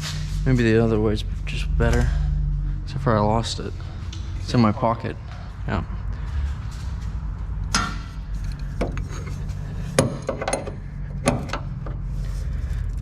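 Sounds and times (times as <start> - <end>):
steady low hum: 0.0 - 13.0
hand tools knocking on metal: 10.0 - 11.6.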